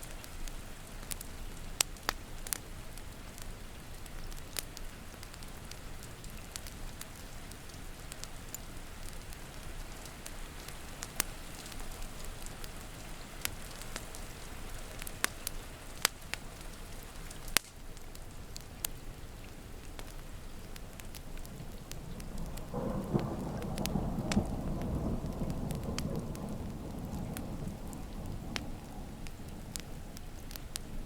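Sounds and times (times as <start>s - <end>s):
steady rain: 0.0s - 31.0s
wood fire crackling: 0.0s - 31.0s
thunder rolling: 21.5s - 31.0s.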